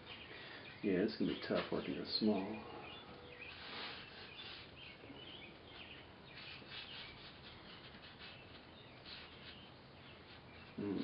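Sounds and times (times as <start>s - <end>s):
small birds chirping: 0.0s - 11.0s
soft rubbing: 3.4s - 5.0s, 5.6s - 11.0s.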